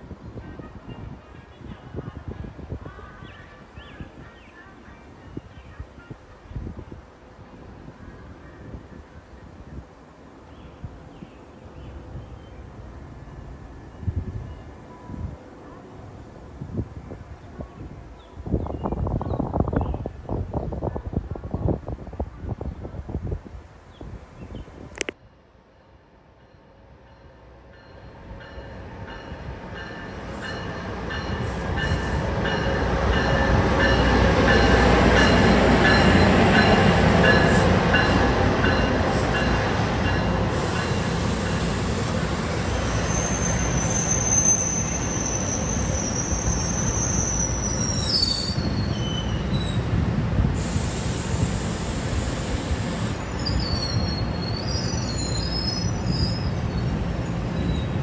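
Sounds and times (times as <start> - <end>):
train rumbling past: 24.7 - 58.0
high-pitched wheel squeal: 42.9 - 49.8, 53.4 - 57.0.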